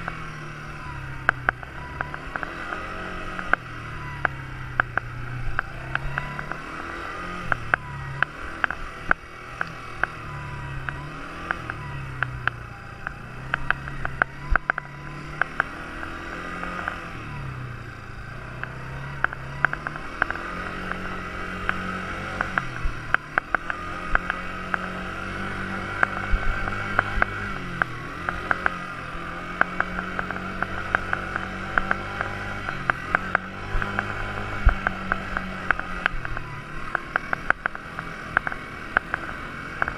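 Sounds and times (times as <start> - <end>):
quad bike engine revving: 0.0 - 39.9
sharp clicks: 7.4 - 10.2, 10.8 - 16.2, 18.6 - 24.9, 29.5 - 39.9.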